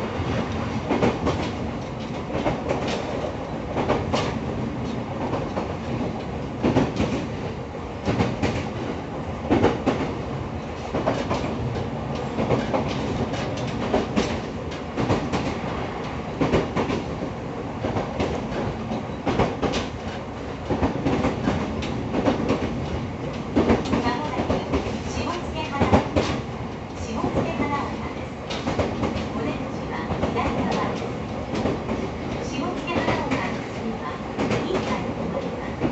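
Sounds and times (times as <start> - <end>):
train interior rumble: 0.0 - 35.9.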